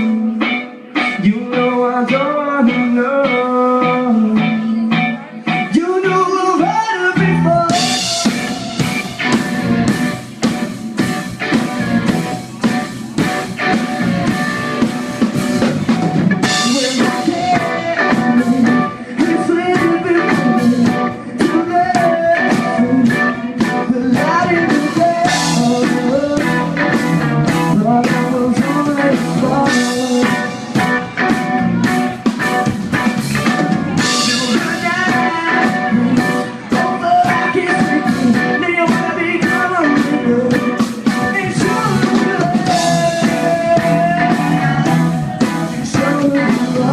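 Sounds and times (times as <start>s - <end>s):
electric guitars: 0.0s - 46.9s
live rock band playing: 0.0s - 46.9s
drum kit beat: 6.6s - 46.9s.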